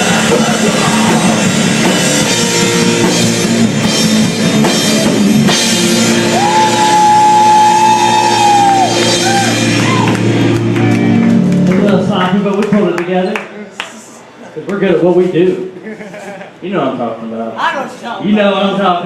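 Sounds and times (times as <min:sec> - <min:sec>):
person shouting singing: 0:00.0 - 0:01.5
electric guitar: 0:00.0 - 0:12.1
drum kit: 0:00.0 - 0:12.9.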